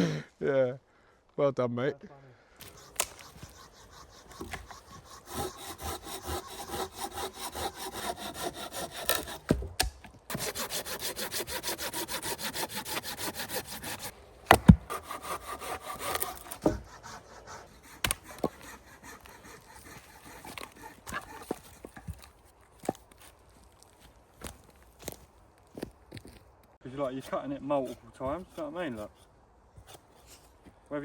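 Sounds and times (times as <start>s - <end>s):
hand saw cutting wood: 2.6s - 22.3s, 27.3s - 30.5s.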